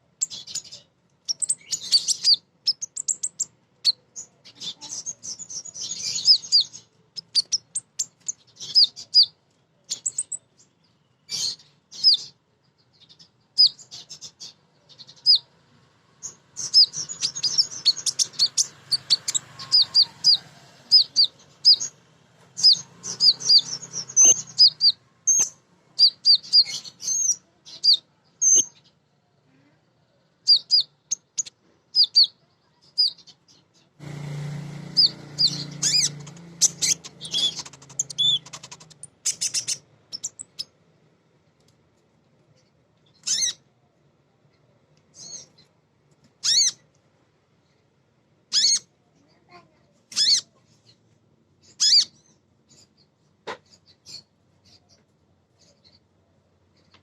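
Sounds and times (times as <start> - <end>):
sunbird chirping: 0.0 - 15.6, 16.2 - 29.0, 30.4 - 34.0, 34.9 - 40.8, 51.6 - 55.0.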